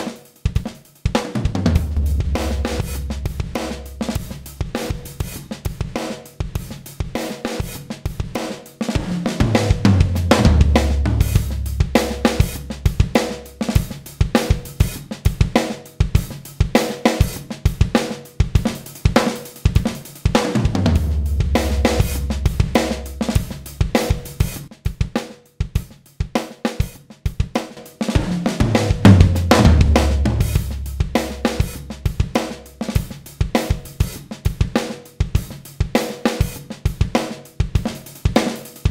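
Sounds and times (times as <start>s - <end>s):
drum kit playing a groove: 0.0s - 38.9s
deep sustained bass notes: 1.8s - 4.6s, 10.3s - 12.8s, 20.9s - 23.5s, 29.6s - 31.9s.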